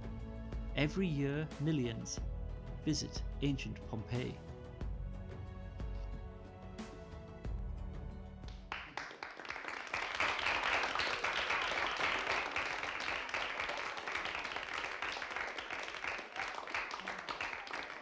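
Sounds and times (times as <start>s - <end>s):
background music: 0.0s - 9.4s
applause: 8.4s - 18.0s.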